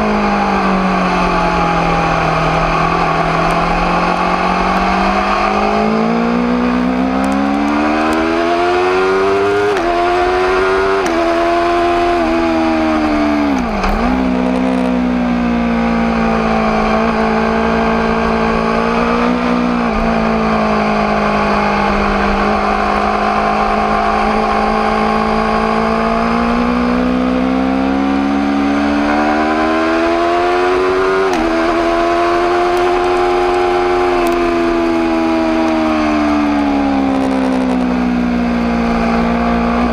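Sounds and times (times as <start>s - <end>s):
motorcycle engine upshifting: 0.0s - 39.9s.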